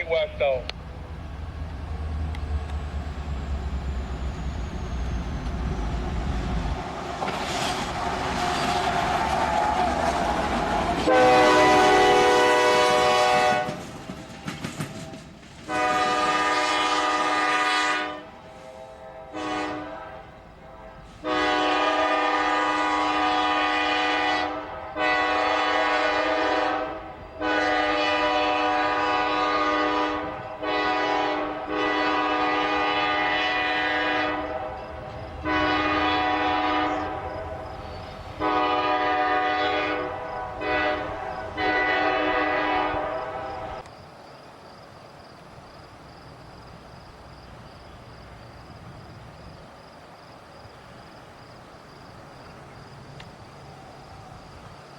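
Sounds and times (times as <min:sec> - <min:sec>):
passing train rumble: 0:00.0 - 0:54.9
locomotive air horn blasts: 0:10.6 - 0:13.8, 0:15.7 - 0:43.8.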